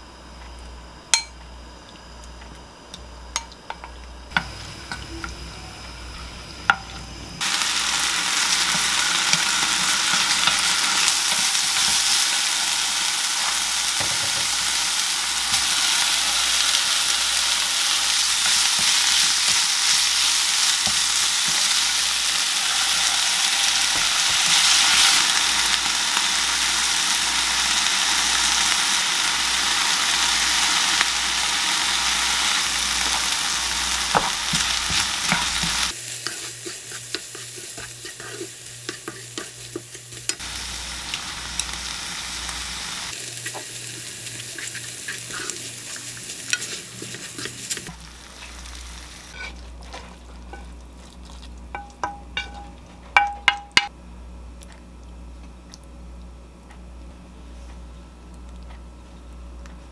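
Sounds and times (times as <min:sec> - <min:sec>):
chicken sizzling in a pan: 0:04.3 - 0:50.7.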